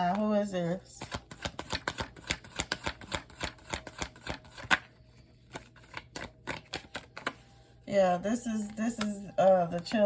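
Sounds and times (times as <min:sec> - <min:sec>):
cards being shuffled: 0:01.0 - 0:07.5.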